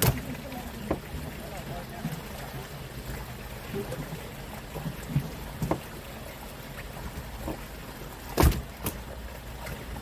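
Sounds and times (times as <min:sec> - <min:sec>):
small boat engine on water: 0:00.0 - 0:10.0
knocks on boat: 0:05.6 - 0:05.9, 0:08.4 - 0:09.0.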